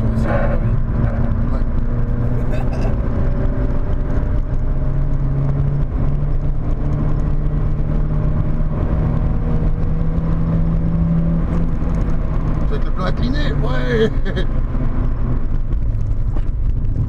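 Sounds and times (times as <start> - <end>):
car engine running: 0.0 - 17.0
road noise: 0.0 - 17.0.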